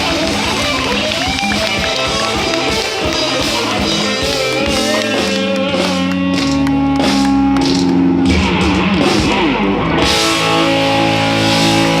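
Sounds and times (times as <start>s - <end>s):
live rock band with guitars: 0.0s - 12.0s.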